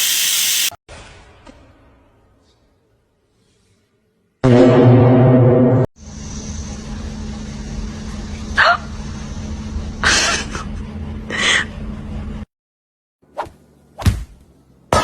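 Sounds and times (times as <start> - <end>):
loud low tone: 4.4 - 8.2
steady low hum: 6.0 - 12.5.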